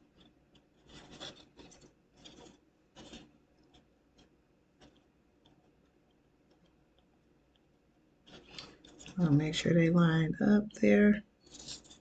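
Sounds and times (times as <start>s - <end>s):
wooden sticks scratchy rubs: 0.0s - 5.9s, 8.2s - 9.5s, 11.4s - 12.0s.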